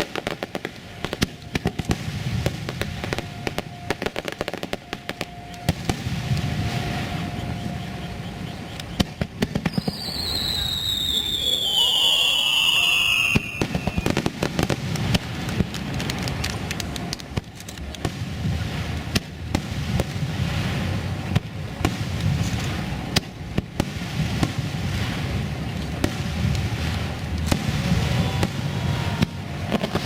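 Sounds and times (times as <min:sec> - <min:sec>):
firework pops and bangs: 0:00.0 - 0:06.9, 0:08.9 - 0:30.0
whistling firework shell: 0:01.0 - 0:14.3.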